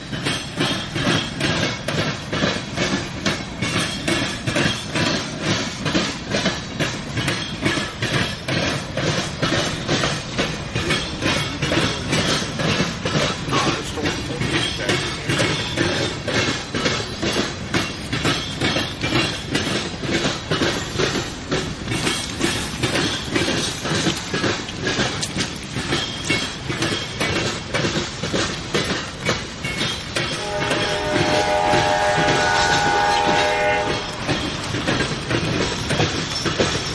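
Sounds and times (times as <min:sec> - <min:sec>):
train wheels clicking over rail joints: 0:00.0 - 0:36.9
train horn: 0:30.4 - 0:34.3.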